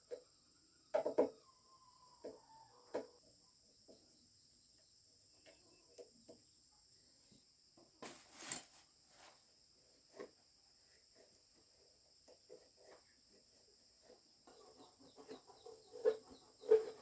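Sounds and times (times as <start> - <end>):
brief rustle: 8.0 - 9.4.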